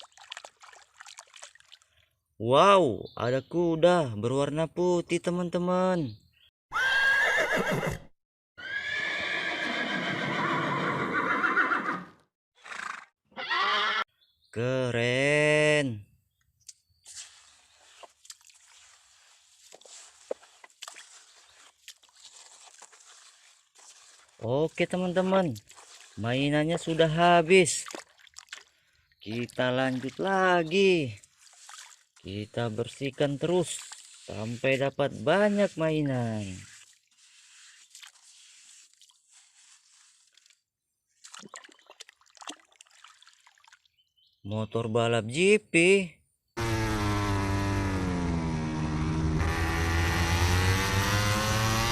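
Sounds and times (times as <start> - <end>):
sand rustling and scraping: 17.0 - 27.2, 30.2 - 40.7.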